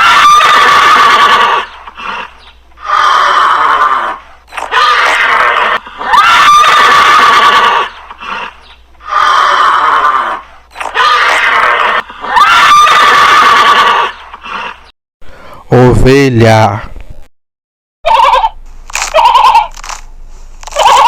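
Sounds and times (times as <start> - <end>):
horse neighing: 0.0 - 14.9, 18.0 - 19.7, 20.7 - 21.0.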